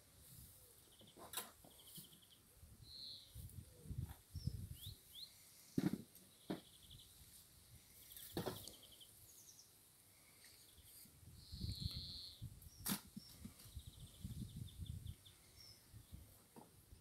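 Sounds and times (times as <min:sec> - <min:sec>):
bird chirping: 0:00.8 - 0:03.5, 0:04.3 - 0:05.7, 0:06.3 - 0:07.2, 0:07.9 - 0:09.8, 0:10.6 - 0:16.3.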